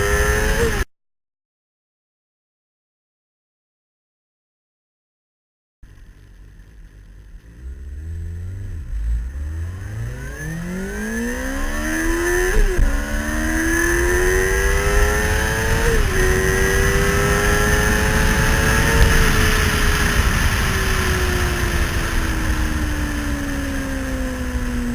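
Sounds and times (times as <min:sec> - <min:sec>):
motorcycle engine accelerating: 0:00.0 - 0:00.9, 0:05.8 - 0:24.9.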